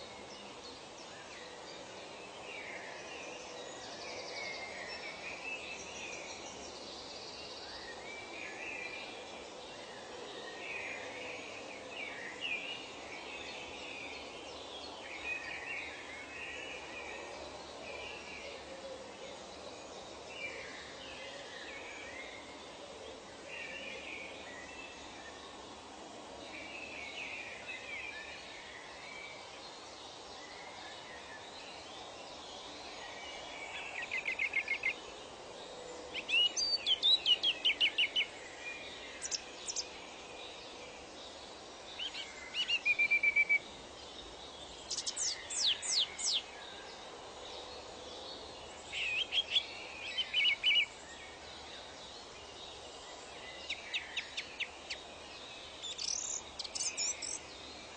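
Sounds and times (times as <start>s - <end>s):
outdoor ambience hiss: 0.0s - 57.9s
songbird singing: 0.0s - 57.9s
distant bird chatter: 53.5s - 57.9s.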